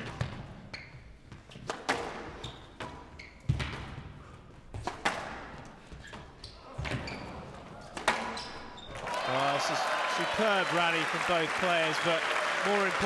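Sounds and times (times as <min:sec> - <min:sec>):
shoes squeaking on court: 0:00.0 - 0:05.1, 0:05.8 - 0:09.0.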